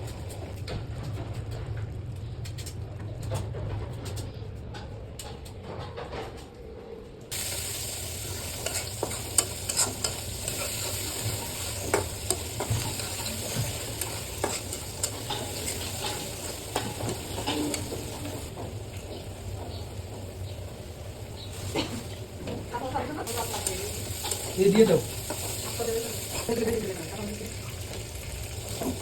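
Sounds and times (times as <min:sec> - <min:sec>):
food sizzling in hot oil: 0:07.3 - 0:29.0
spatula scraping pan: 0:08.3 - 0:18.5.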